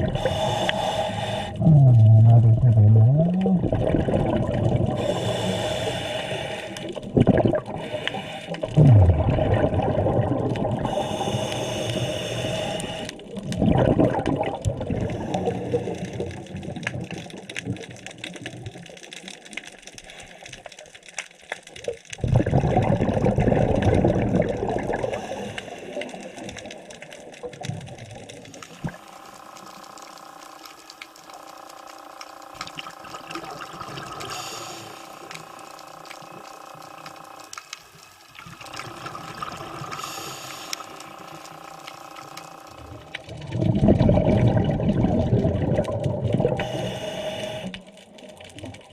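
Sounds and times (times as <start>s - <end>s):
diver exhaling bubbles: 0.0s - 17.4s, 22.2s - 26.5s, 42.8s - 47.7s
faint steady hum: 0.0s - 18.9s, 22.2s - 48.9s.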